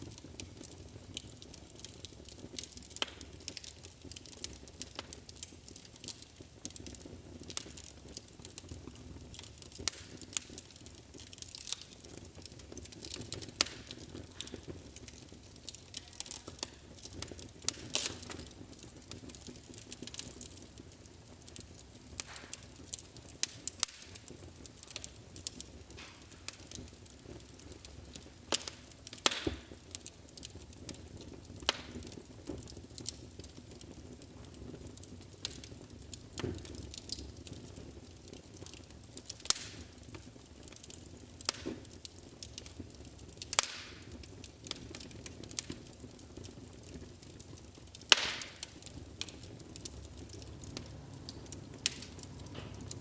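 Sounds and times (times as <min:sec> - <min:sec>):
wood fire crackling and popping: 0:00.0 - 0:53.0
hiss of flames: 0:09.4 - 0:20.8.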